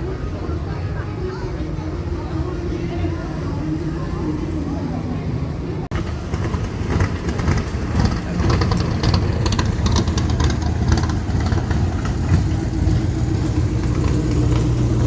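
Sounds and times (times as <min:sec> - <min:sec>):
car driving slowly past: 0:05.8 - 0:15.0.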